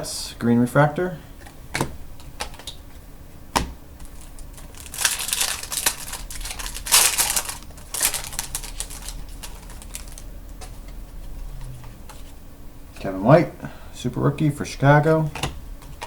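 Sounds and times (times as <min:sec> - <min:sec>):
foil wrapper crinkling: 0:04.0 - 0:10.8.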